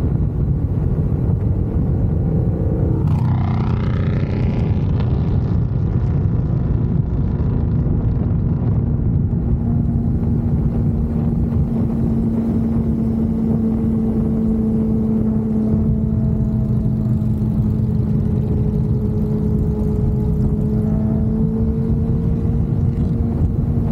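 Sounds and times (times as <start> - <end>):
motorcycle engine cruising: 0.0 - 23.9
wind rumble on microphone: 0.0 - 23.9.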